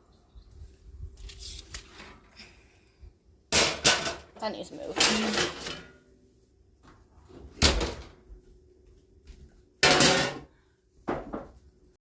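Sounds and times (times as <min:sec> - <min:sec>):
kitchen items clattering: 0:03.6 - 0:06.0, 0:09.8 - 0:10.5
kitchen item clunk: 0:09.8 - 0:10.5.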